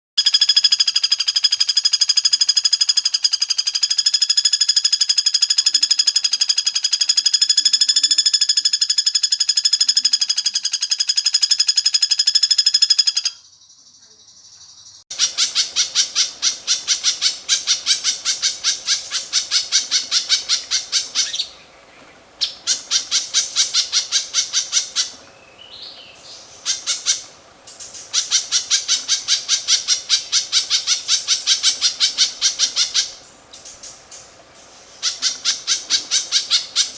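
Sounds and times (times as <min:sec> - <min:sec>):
songbird harsh buzzy trill: 0:14.8 - 0:36.9.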